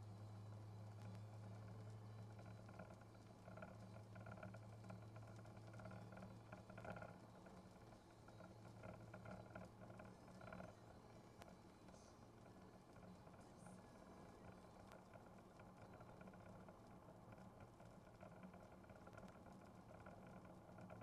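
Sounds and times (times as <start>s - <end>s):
soft patter: 0.5s - 21.0s.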